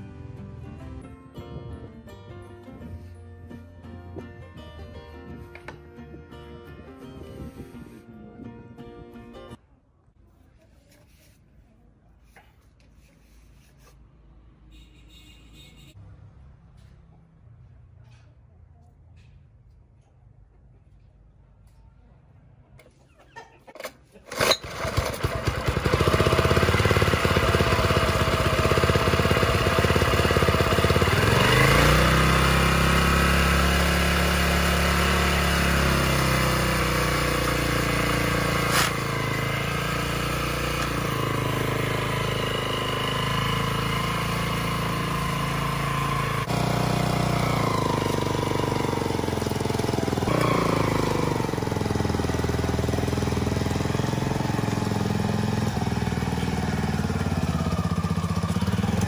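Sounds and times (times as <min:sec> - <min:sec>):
small petrol engine running: 0:23.8 - 0:59.0.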